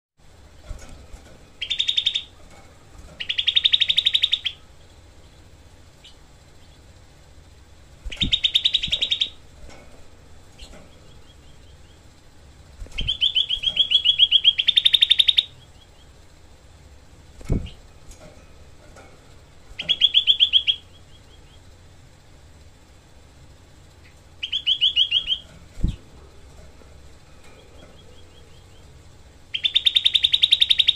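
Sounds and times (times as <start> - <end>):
bird trilling: 1.5 - 2.4, 3.2 - 4.7, 8.0 - 9.4, 12.8 - 16.2, 19.8 - 21.7, 24.0 - 26.0, 27.8 - 30.9.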